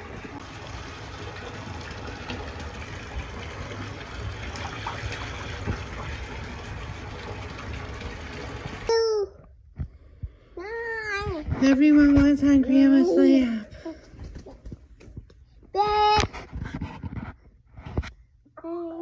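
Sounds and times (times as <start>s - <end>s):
water running into a bathtub: 0.0s - 10.3s, 11.4s - 15.1s.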